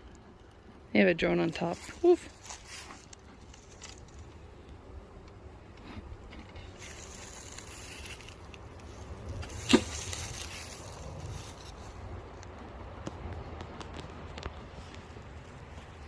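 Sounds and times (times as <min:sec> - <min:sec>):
honey bees buzzing: 0:01.6 - 0:12.0
wind rumble on microphone: 0:04.6 - 0:16.0.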